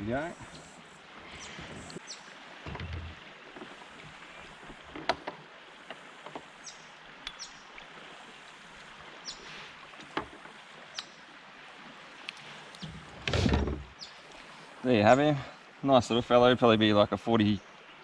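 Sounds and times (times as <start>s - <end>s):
knocks against kayak hull: 2.6s - 3.2s, 12.8s - 13.9s
low thud: 2.6s - 3.2s, 13.2s - 13.9s.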